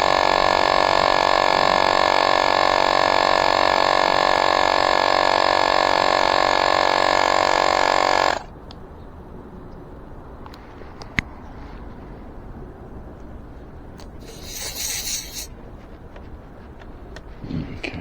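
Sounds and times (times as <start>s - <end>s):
electric air pump running: 0.0s - 8.5s, 14.0s - 15.5s.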